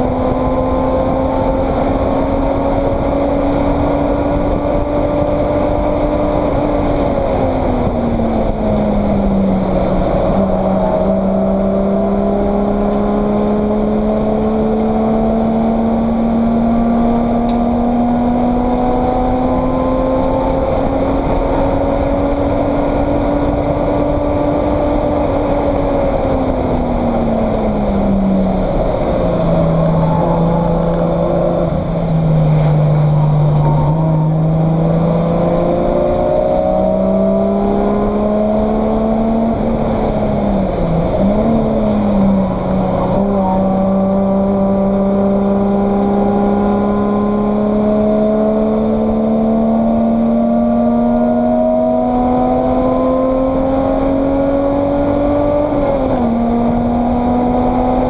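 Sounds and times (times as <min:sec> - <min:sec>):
race car engine revving: 0:00.0 - 0:58.0
wind and road noise: 0:00.0 - 0:58.0.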